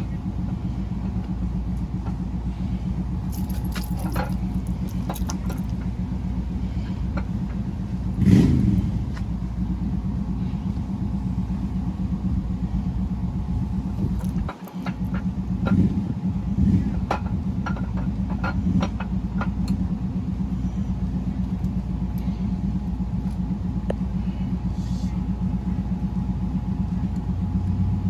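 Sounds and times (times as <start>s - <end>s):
low mechanical drone: 0.0s - 28.0s
light metallic clinks: 3.2s - 5.8s.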